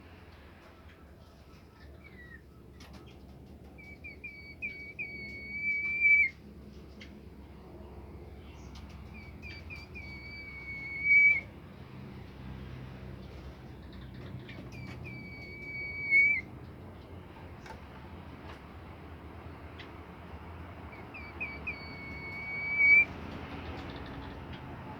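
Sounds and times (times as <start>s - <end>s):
bird whistling song: 3.8s - 6.4s, 9.1s - 11.5s, 14.7s - 16.5s, 20.9s - 23.2s.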